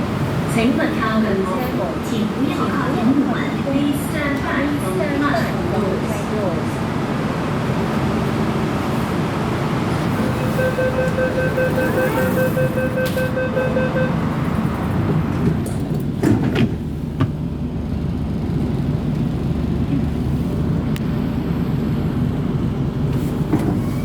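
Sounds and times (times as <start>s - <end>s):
train low rumble: 0.0s - 24.0s
door-closing warning beeps: 10.2s - 14.2s
sliding doors thud shut: 16.2s - 17.4s.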